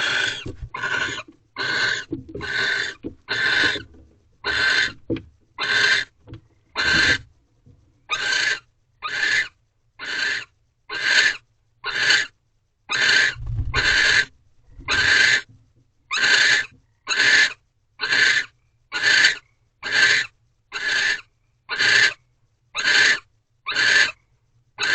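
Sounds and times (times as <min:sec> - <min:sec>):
owl rasping hiss call: 0:08.1 - 0:12.3, 0:12.9 - 0:14.3, 0:14.9 - 0:15.5, 0:16.1 - 0:22.2, 0:22.8 - 0:24.2.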